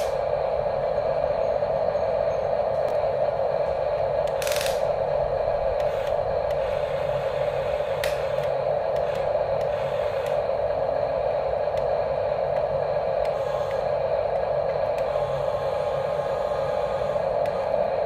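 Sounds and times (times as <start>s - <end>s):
small electric gear motors droning: 4.0s - 18.0s.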